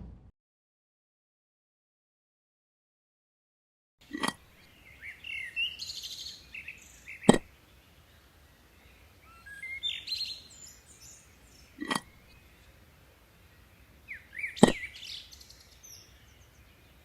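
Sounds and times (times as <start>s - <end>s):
small birds chirping: 4.0s - 17.0s.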